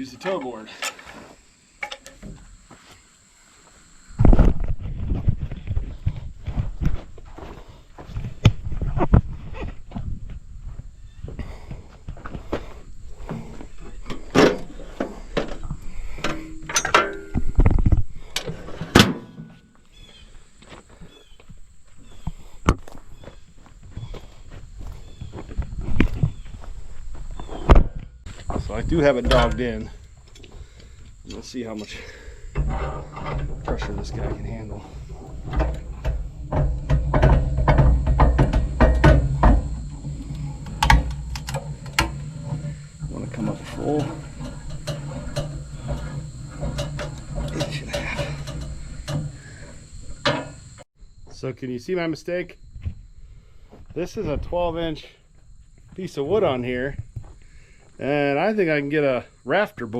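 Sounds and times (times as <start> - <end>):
metal clanks and knocks: 1.8 - 2.4, 13.3 - 17.6, 31.3 - 50.8
heavy thud: 32.5 - 50.7.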